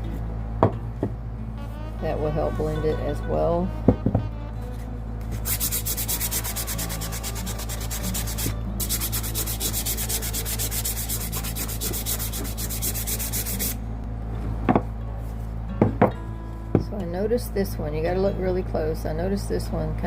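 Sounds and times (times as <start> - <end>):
sandpaper rubbing on wood: 5.4 - 13.8.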